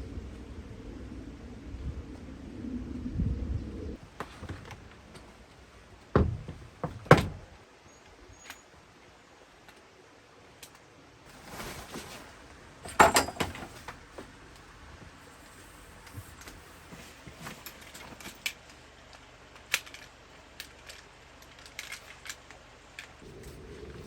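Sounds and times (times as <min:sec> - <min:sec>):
rustle: 0:00.0 - 0:24.0
sharp knocks and thuds: 0:06.1 - 0:07.6.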